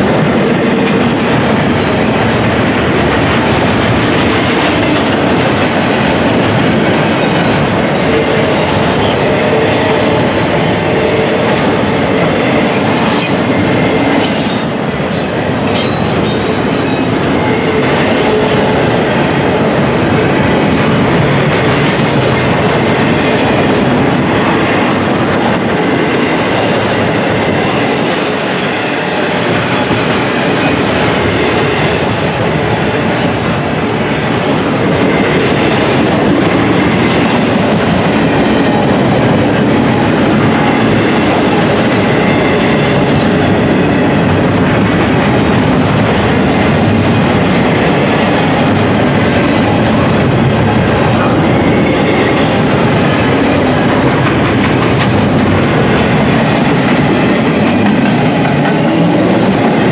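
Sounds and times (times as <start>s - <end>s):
freight train wheels on rails: 0.0s - 59.9s
clatter over rail joints: 52.6s - 58.9s.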